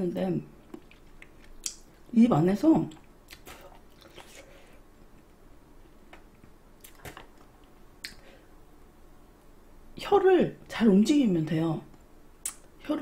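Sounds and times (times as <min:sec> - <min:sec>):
wet chewing mouth sounds: 0:00.6 - 0:02.1, 0:02.9 - 0:05.3.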